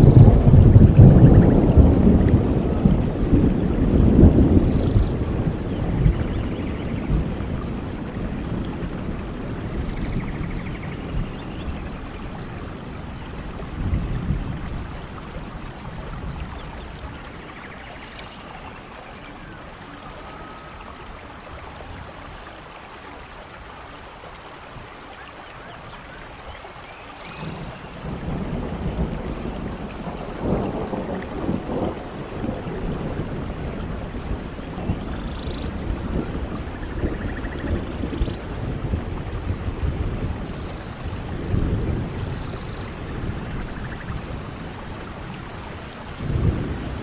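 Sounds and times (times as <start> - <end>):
rolling thunder: 0.0 - 17.6, 27.3 - 47.0
steady rain: 0.0 - 47.0.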